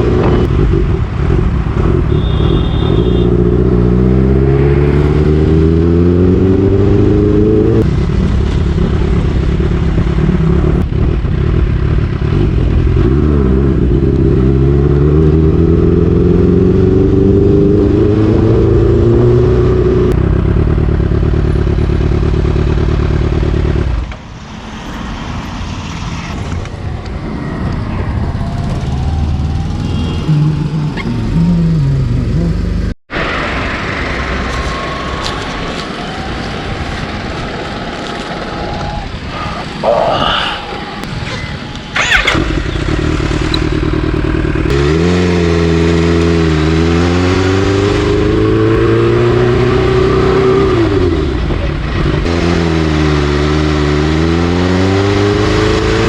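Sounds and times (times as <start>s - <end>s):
motorcycle engine accelerating: 0.0s - 24.1s, 26.1s - 33.0s, 41.7s - 56.0s.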